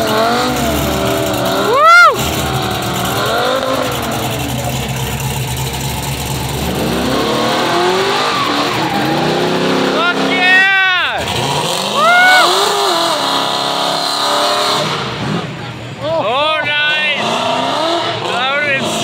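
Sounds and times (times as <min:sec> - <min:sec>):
car engines rumbling and revving: 0:00.0 - 0:19.0
short whoop: 0:01.6 - 0:03.3, 0:11.9 - 0:13.0.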